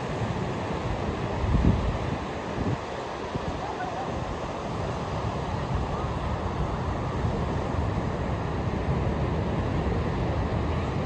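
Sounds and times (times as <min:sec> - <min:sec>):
ocean surf washing: 0:00.0 - 0:11.0
wind rumbling on microphone: 0:00.0 - 0:11.0.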